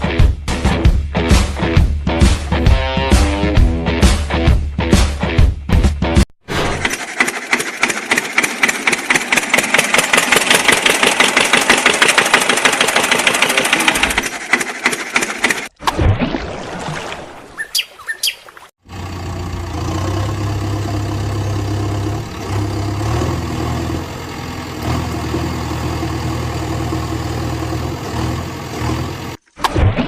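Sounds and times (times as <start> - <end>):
diesel engine running: 6.6 - 15.7, 18.8 - 29.4
high chirps: 17.6 - 18.5.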